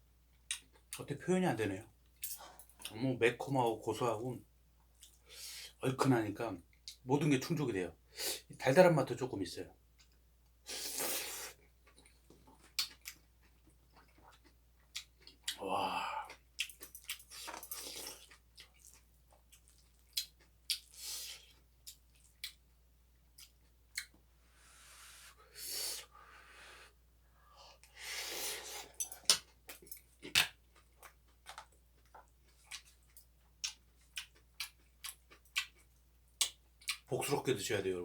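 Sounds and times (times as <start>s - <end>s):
chewing and mouth smacking: 11.8s - 15.6s, 16.3s - 22.6s, 29.0s - 37.1s.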